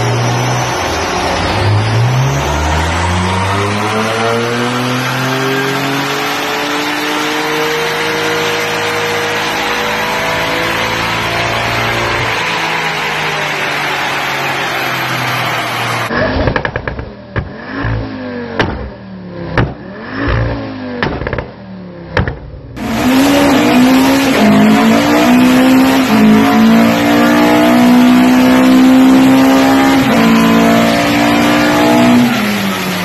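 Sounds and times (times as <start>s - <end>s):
car engine at full throttle: 0.0s - 33.0s
car engine revving in blips: 0.0s - 33.0s
exhaust pops and bangs: 16.4s - 17.6s, 18.6s - 22.7s.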